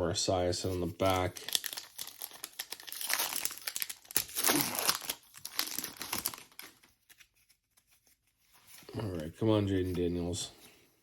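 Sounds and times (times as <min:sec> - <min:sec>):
foil wrapper crinkling: 0:01.0 - 0:06.8.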